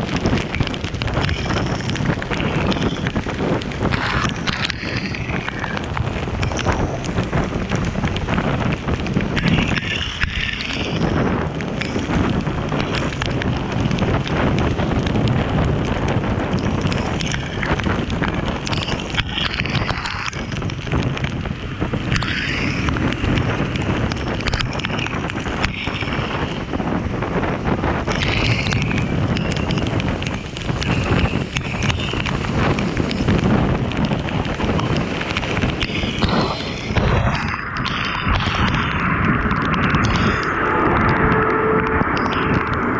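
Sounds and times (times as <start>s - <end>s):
road and vehicle noise: 0.0s - 42.9s
wind rushing over microphone: 0.0s - 42.9s.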